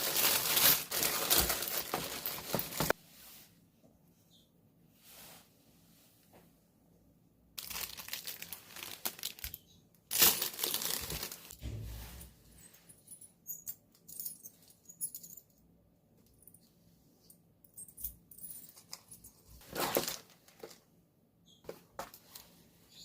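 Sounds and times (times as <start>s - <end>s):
plastic packaging crinkling: 0.0s - 3.0s, 7.6s - 11.6s, 19.6s - 20.8s
rustling: 0.0s - 3.6s, 7.6s - 13.3s
plastic packaging tearing: 7.6s - 11.6s.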